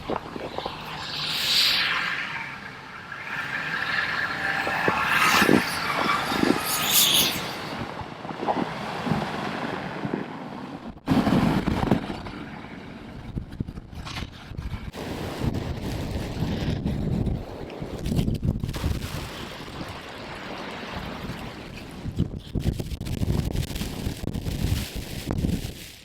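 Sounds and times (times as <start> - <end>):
hissing and scraping: 0.0 - 7.8
vehicles on snowy street: 0.0 - 18.2.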